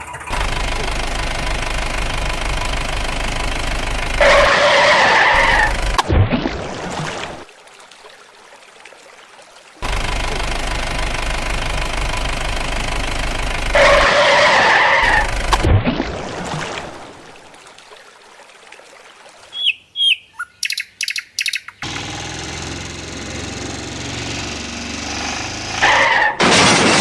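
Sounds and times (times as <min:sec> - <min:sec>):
cartoon engine running: 0:00.0 - 0:06.0, 0:09.8 - 0:15.7, 0:21.8 - 0:26.0
engine starting up: 0:00.0 - 0:06.0, 0:09.8 - 0:15.8, 0:21.8 - 0:26.1
bird chirps: 0:19.5 - 0:21.8.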